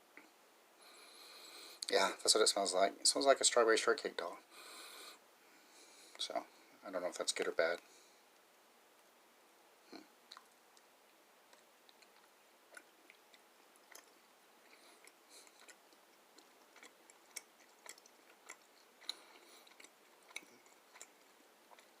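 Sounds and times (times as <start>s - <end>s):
chewing candy: 9.9s - 10.9s, 11.5s - 22.0s.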